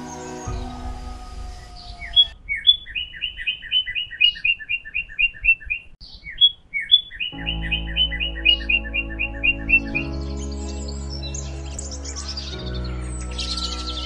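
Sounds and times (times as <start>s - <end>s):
background music: 0.0s - 2.4s, 7.4s - 14.0s.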